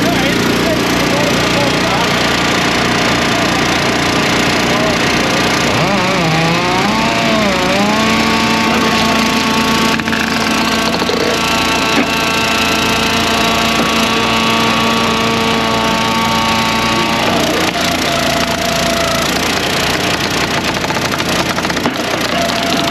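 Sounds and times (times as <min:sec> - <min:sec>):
log splitter engine running: 0:00.0 - 0:22.9
sharp knocks: 0:19.4 - 0:22.9.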